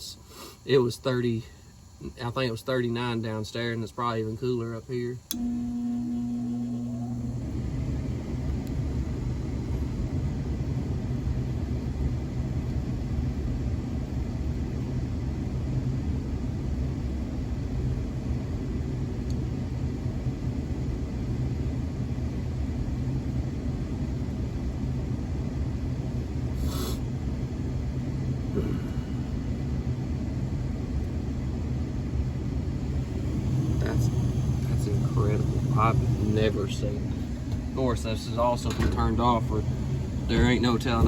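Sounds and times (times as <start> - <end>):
gas furnace rumbling and humming: 0.0 - 41.0.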